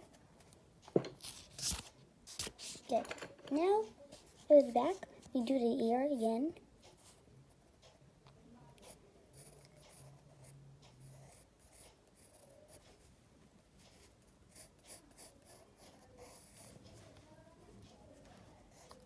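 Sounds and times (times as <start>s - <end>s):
pencil scratching on paper: 8.8s - 13.1s, 13.8s - 17.3s, 18.5s - 19.0s.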